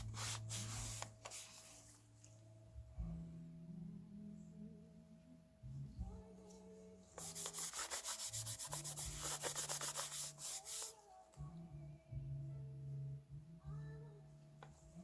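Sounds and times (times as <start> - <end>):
quiet music: 0.0 - 15.0
quick rhythmic rubbing strokes: 7.2 - 11.0.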